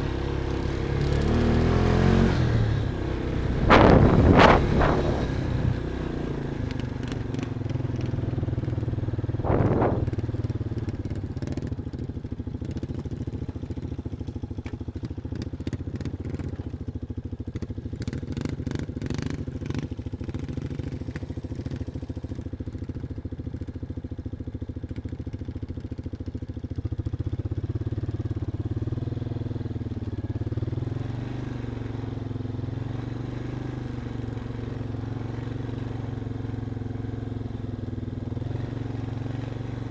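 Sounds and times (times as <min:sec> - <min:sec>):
vehicle engine running at low revs: 0:00.0 - 0:39.9.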